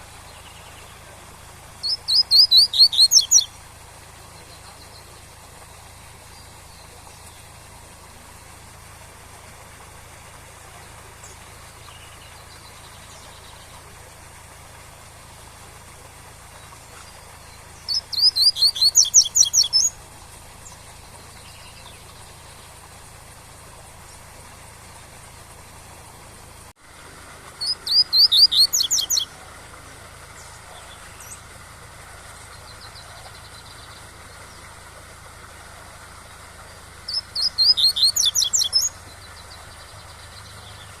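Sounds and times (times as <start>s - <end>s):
faint bird chirps: 0.0s - 8.8s, 10.0s - 14.2s, 16.5s - 23.1s, 27.3s - 31.6s, 32.2s - 41.0s
bird singing whistled notes: 1.8s - 3.6s, 16.7s - 20.0s, 27.6s - 29.4s, 37.1s - 41.0s.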